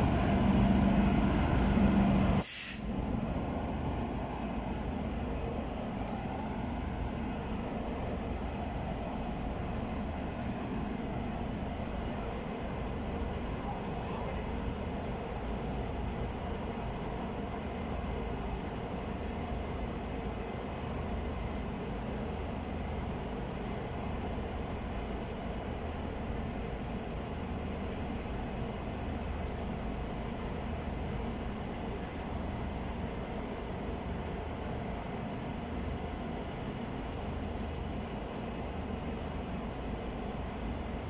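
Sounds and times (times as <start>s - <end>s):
diesel train engine humming: 0.0s - 41.0s
air brakes hissing: 2.4s - 3.0s.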